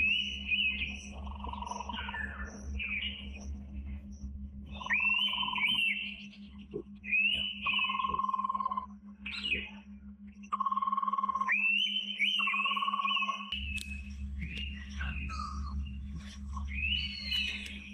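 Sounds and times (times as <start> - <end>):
low steady hum: 0.0 - 17.9
bird whistled call: 4.7 - 6.3, 7.0 - 8.4, 11.4 - 13.8, 16.6 - 17.9.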